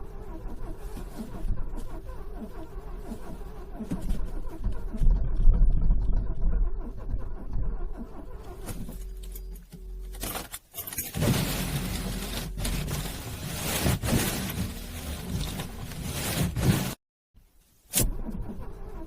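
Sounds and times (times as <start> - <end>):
starter motor cranking engine: 0.0 - 9.2.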